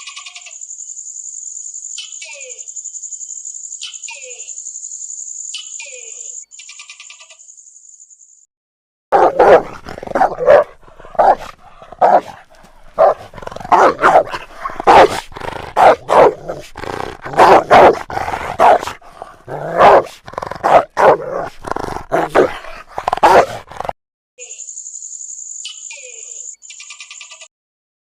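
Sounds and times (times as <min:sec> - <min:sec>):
dogs barking and growling: 0:09.1 - 0:24.0.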